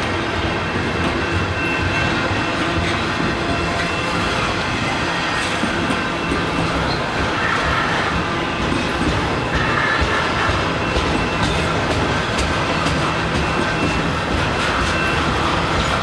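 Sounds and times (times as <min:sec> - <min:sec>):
freight train cars rolling past: 0:00.0 - 0:16.0.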